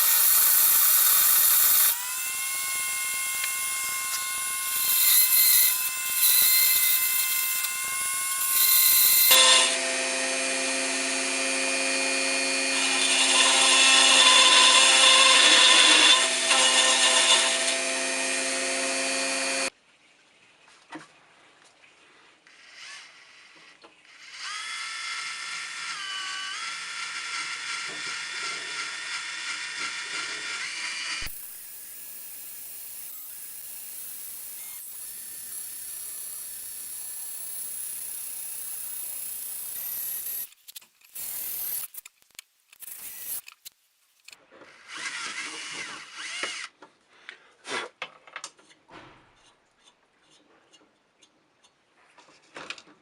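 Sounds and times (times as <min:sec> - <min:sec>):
power drill motor whining: 0:00.0 - 0:19.7, 0:24.1 - 0:42.0, 0:42.8 - 0:43.4, 0:44.7 - 0:46.8.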